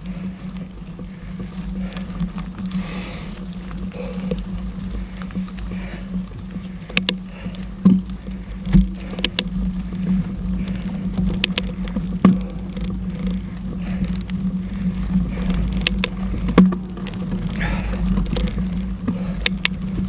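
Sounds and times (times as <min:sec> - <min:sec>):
bike rattling over bumps: 0:00.0 - 0:20.0
bike rumble and hum: 0:00.0 - 0:20.0.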